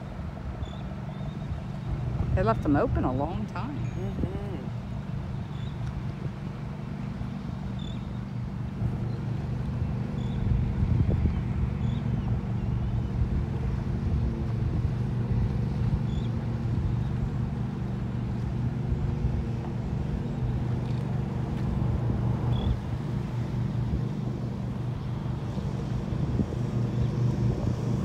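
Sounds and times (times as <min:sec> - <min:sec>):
engine droning: 0:00.0 - 0:28.0
wind rumble on microphone: 0:00.0 - 0:28.0.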